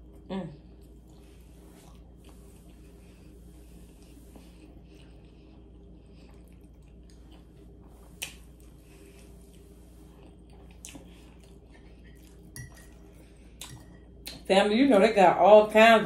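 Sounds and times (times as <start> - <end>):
person chewing food: 0.0 - 14.4
faint low hum: 0.0 - 16.0
wet mouth clicks: 8.2 - 8.4.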